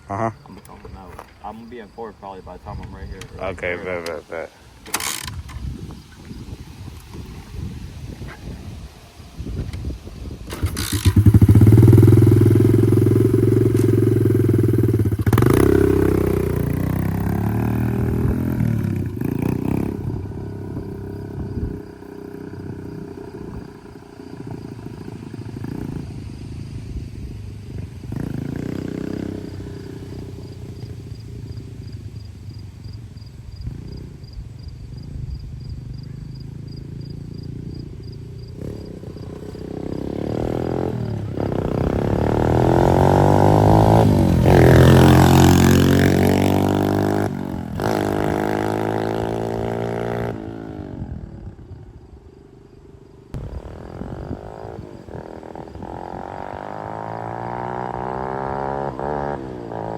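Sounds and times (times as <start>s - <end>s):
dirt bike engine revving: 1.5s - 6.5s, 10.4s - 32.6s, 35.8s - 51.4s, 53.3s - 59.9s.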